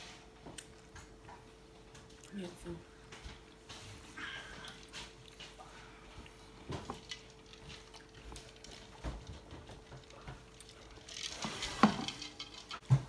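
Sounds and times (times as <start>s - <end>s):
faint steady hum: 0.0s - 13.0s
rustle and knock: 6.6s - 13.0s.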